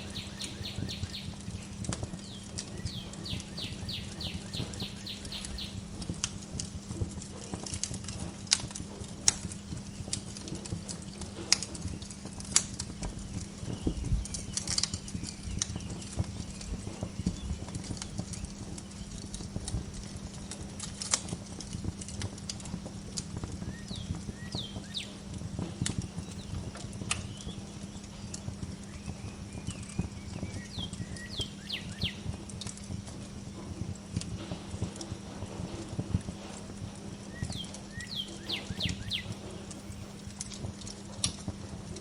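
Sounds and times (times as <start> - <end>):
bird chirping: 0.0 - 5.8, 23.6 - 32.3, 37.2 - 40.3
wood fire crackling: 0.0 - 42.0.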